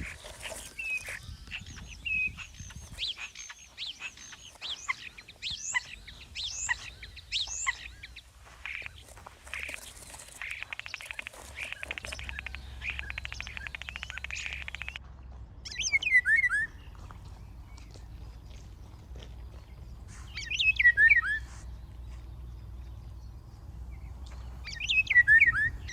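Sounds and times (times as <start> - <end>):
birds chirping and singing: 0.0 - 15.0, 15.6 - 25.9
bird rattling trill: 8.6 - 15.0.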